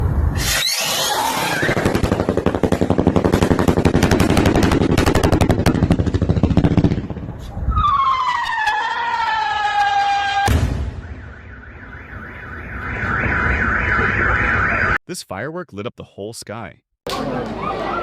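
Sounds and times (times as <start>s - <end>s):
firework crackling pops: 0.4s - 7.1s.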